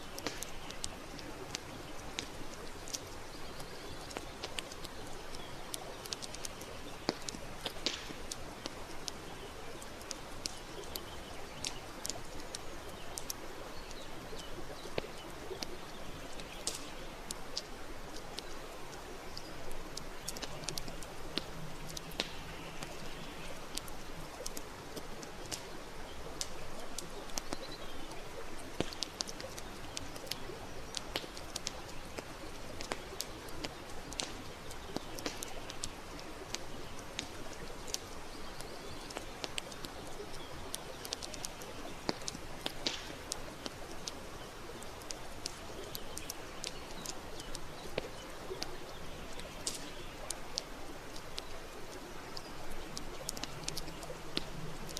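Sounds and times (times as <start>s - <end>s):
campfire crackling and popping: 0.0s - 54.9s.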